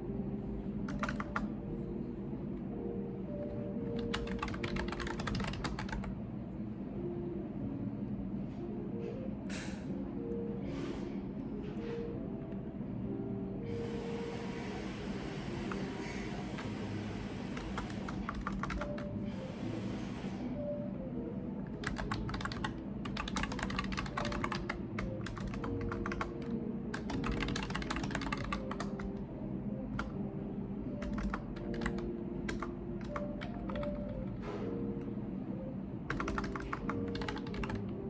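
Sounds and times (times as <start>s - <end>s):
computer keyboard typing: 0.8s - 1.5s, 3.8s - 6.1s, 15.6s - 19.2s, 21.6s - 29.2s, 30.0s - 30.2s, 30.9s - 34.4s, 36.1s - 38.0s.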